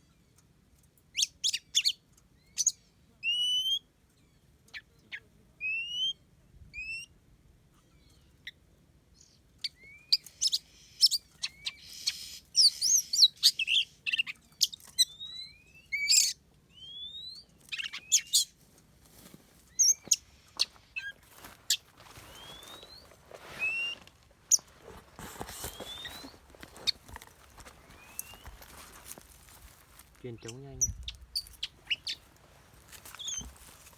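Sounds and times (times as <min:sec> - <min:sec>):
bird whistling calls: 0:09.6 - 0:18.5, 0:19.7 - 0:29.2, 0:30.4 - 0:32.2, 0:33.1 - 0:33.6
harsh bird chattering: 0:10.4 - 0:14.4, 0:19.8 - 0:29.2, 0:30.1 - 0:32.3.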